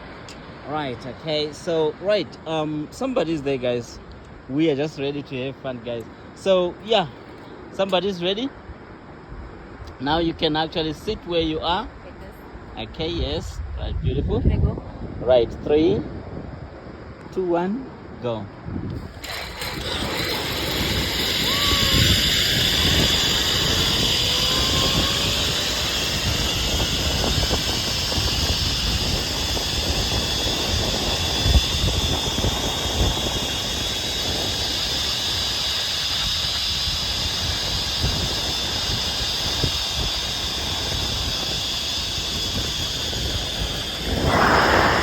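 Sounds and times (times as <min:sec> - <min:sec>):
wind rumbling on microphone: 0:12.8 - 0:17.4, 0:18.0 - 0:45.0
zipline pulleys whining on cable: 0:19.0 - 0:45.0.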